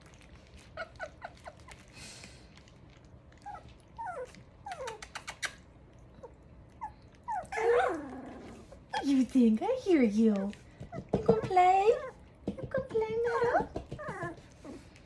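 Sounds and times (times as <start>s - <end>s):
puppies whimpering: 3.4s - 5.0s, 6.1s - 9.2s, 13.3s - 14.9s.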